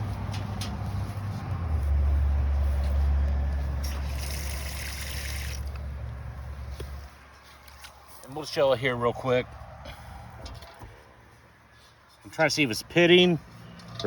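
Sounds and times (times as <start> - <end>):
hissing water spray: 3.8 - 5.7.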